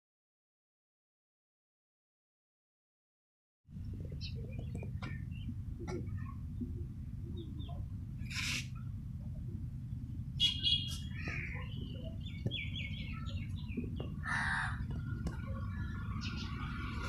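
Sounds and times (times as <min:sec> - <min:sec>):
steady low rumble: 0:03.7 - 0:17.0
harsh bird calls: 0:07.4 - 0:08.9, 0:10.4 - 0:17.0.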